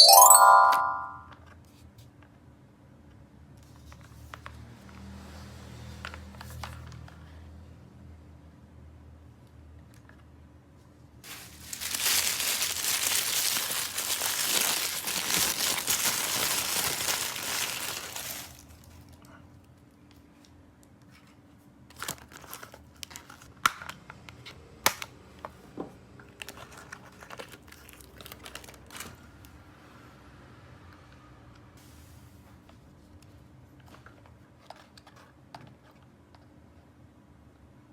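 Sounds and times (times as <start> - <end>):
packaging crinkling and tearing: 11.3 - 18.8, 22.0 - 23.5, 26.4 - 29.1.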